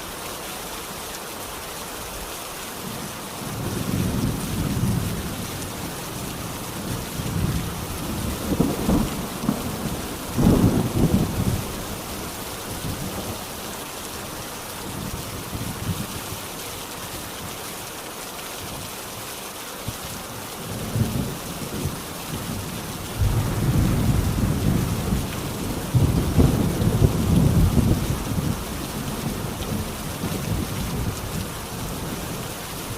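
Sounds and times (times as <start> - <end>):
heavy rain hissing: 0.0 - 32.9
rolling thunder: 7.3 - 12.0, 23.2 - 31.2.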